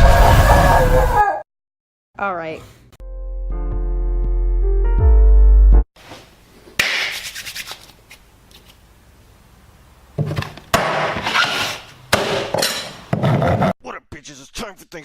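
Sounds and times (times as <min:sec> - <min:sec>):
rough scraping and rubbing: 0:11.2 - 0:12.0.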